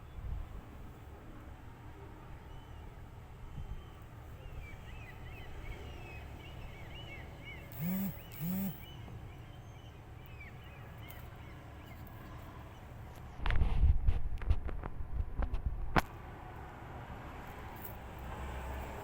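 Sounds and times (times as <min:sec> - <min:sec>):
small birds chirping: 0:03.7 - 0:13.1
loud low bird calls: 0:03.8 - 0:13.0.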